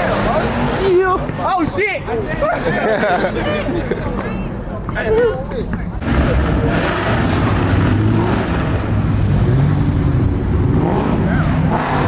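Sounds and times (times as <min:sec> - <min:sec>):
car engine running: 0:06.0 - 0:12.0.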